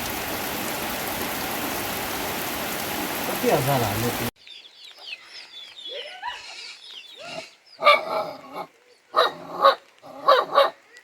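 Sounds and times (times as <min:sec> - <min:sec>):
dog barking: 0:07.8 - 0:10.8.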